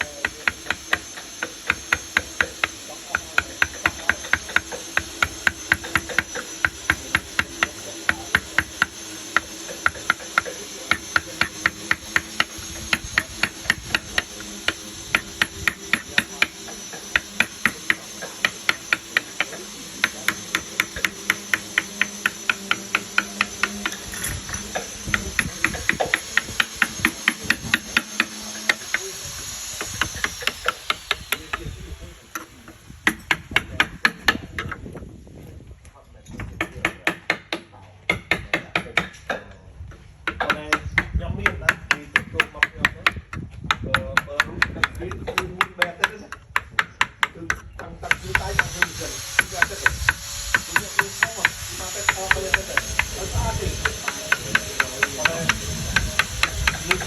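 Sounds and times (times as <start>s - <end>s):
steady high-pitched whine: 0.0s - 33.3s, 48.2s - 57.0s
mallet tapping chisel into wood: 40.3s - 51.6s.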